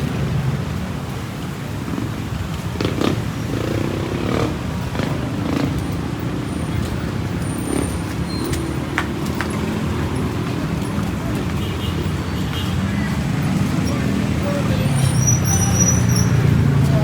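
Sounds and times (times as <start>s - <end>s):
vehicle engines running: 0.0s - 17.0s.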